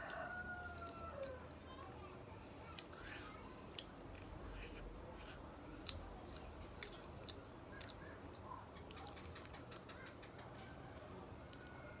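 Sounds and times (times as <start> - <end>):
wet chewing mouth clicks: 5.8 - 10.0.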